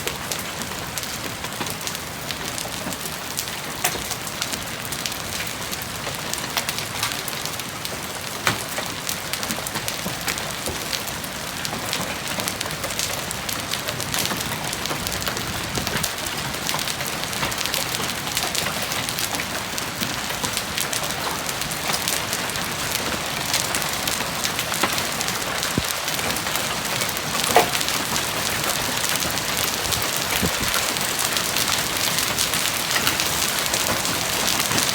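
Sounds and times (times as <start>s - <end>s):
hailstones striking hard surfaces: 8.4s - 34.9s.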